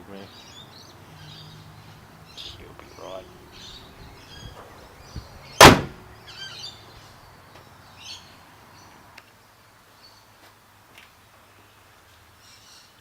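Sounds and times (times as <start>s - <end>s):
birds chirping faintly: 0.0s - 10.5s
car bonnet slamming shut: 5.6s - 6.1s.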